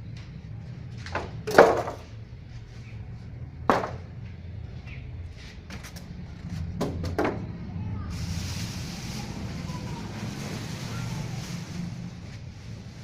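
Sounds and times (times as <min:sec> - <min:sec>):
sharp knocks and bumps: 0:03.7 - 0:04.1.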